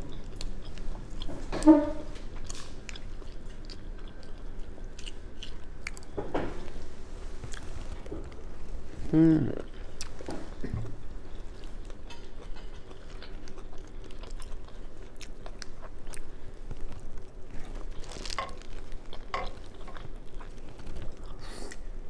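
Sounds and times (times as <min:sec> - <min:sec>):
chewing and biting shrimp: 0:11.7 - 0:21.8.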